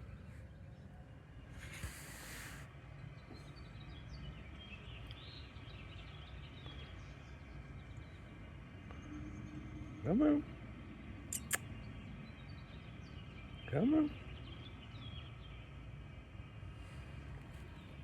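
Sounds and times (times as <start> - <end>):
short hiss: 1.6 - 2.7
bird chirps: 11.2 - 15.8.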